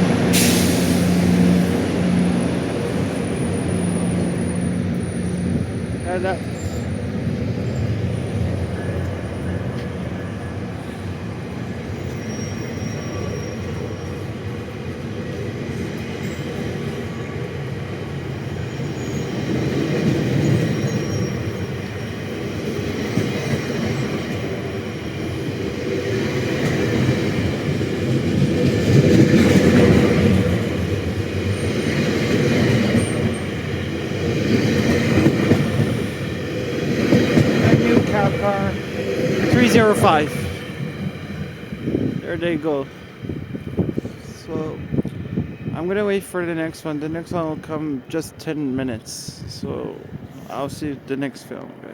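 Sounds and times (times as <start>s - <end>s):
train wheels rumbling on rails: 0.0s - 51.9s
faint wheel squeal: 12.0s - 14.3s
clickety-clack of train wheels: 15.3s - 42.5s.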